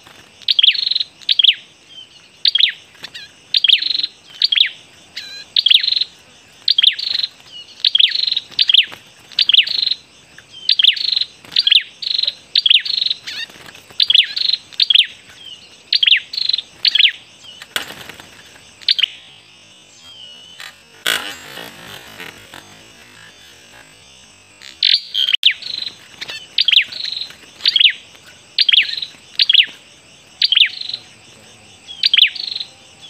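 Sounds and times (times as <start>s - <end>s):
songbird chirping: 0.0s - 33.0s
rustling: 20.0s - 24.7s.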